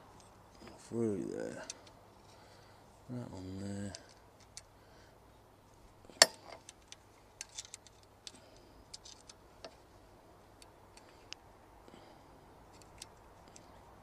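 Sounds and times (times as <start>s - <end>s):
metal parts clicking and tapping: 6.2s - 9.8s.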